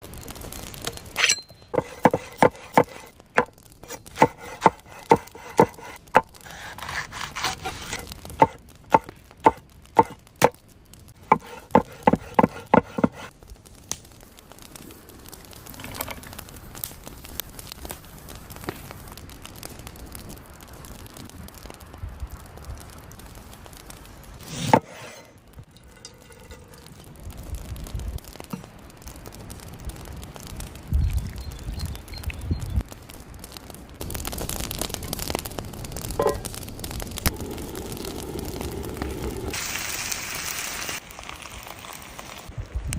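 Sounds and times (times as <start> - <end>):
handling and rubbing sounds: 1.7 - 10.2, 11.2 - 13.3, 24.4 - 27.1
knife chopping on cutting board: 1.8 - 3.0, 3.9 - 10.2.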